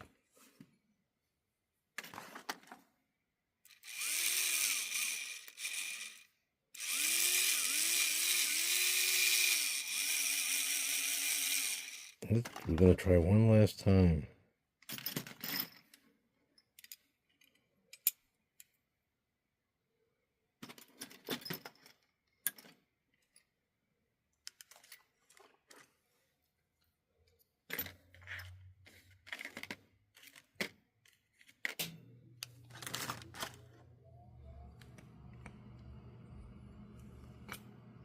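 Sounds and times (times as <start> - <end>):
small parts clicking and rattling: 3.6 - 12.8, 14.8 - 18.8, 20.6 - 23.6, 24.4 - 26.0, 27.2 - 33.8
low steady hum: 32.2 - 38.0.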